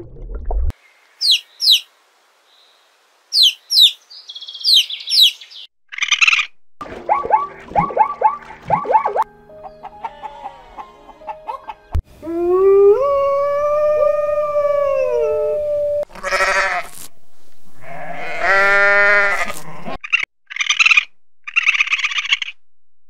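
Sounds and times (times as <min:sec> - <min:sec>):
raspy calls: 0:01.2 - 0:01.9, 0:03.3 - 0:06.5, 0:09.7 - 0:11.8
sheep bleating: 0:10.0 - 0:11.2, 0:16.1 - 0:16.9, 0:17.8 - 0:20.0.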